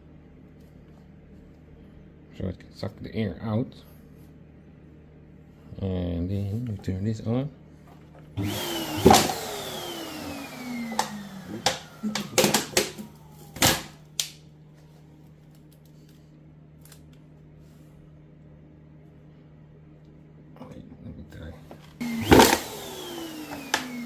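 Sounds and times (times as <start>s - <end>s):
vacuum cleaner whining: 8.4s - 14.1s, 22.0s - 24.0s.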